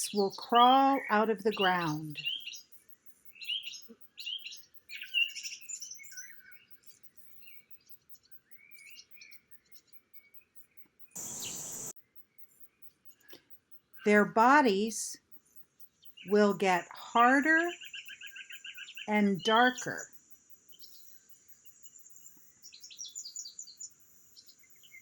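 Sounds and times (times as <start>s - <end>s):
birds chirping and singing: 0.0s - 10.3s, 11.2s - 11.9s, 16.0s - 20.0s, 20.7s - 25.0s.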